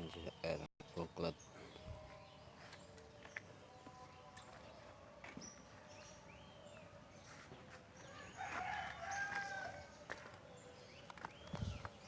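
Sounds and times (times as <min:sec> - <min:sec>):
rooster crowing: 0:08.1 - 0:10.0.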